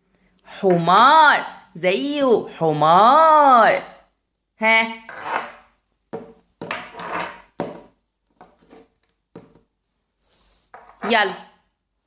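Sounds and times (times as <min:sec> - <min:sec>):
small objects clattering on a table: 0:05.2 - 0:09.7, 0:10.6 - 0:11.2.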